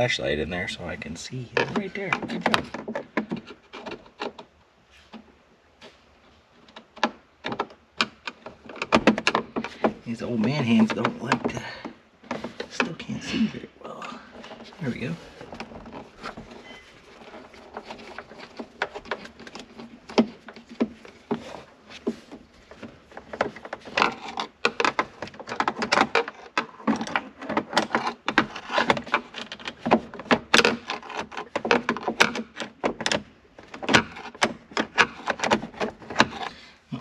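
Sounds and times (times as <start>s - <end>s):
plastic trim clicking and rattling: 14.3s - 36.6s.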